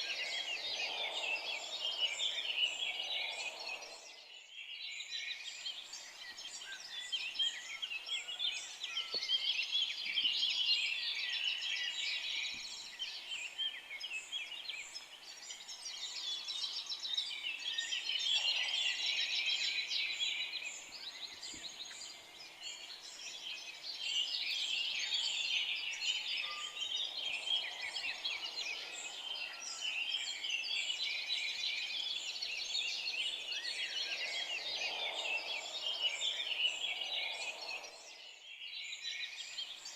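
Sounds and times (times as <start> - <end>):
forest birds chirping and trilling: 0.0 - 39.9.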